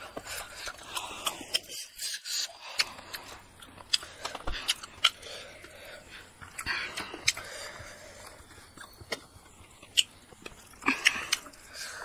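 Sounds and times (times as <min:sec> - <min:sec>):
child chewing with wet smacks: 0:00.0 - 0:12.0.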